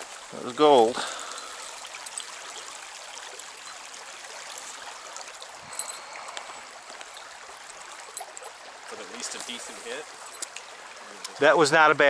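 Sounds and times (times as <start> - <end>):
stream rushing and babbling: 0.0 - 12.0
faint ticks: 5.2 - 8.5, 10.2 - 11.4.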